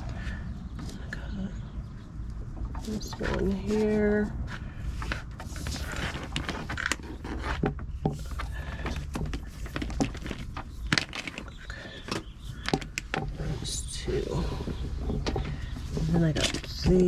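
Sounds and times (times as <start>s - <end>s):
steady low rumble: 0.0s - 17.0s
wires and connectors clicking: 5.0s - 13.4s.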